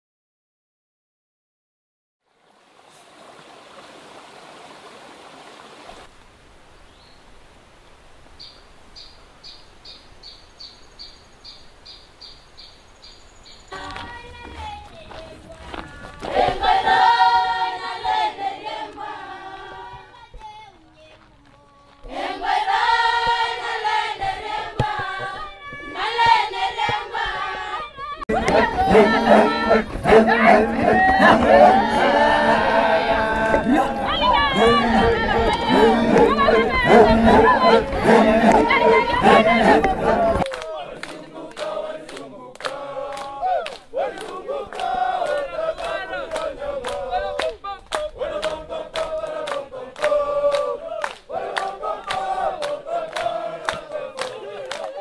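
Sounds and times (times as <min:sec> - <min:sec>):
rushing water: 0:02.2 - 0:10.2
bird chirping: 0:06.8 - 0:14.0
voices singing in chorus: 0:13.0 - 0:20.4, 0:22.0 - 0:55.0.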